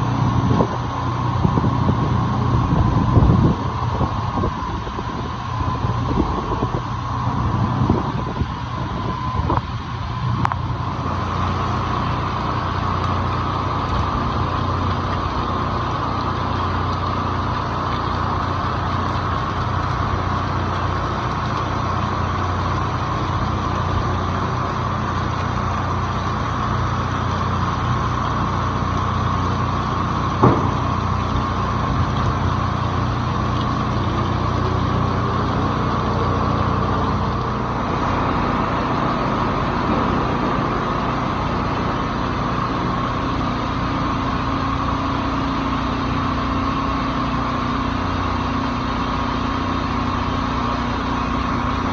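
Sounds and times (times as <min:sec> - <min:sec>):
steady low hum: 0:00.0 - 0:51.9
heavy rain: 0:10.0 - 0:51.9
sharp knock: 0:30.4 - 0:31.0.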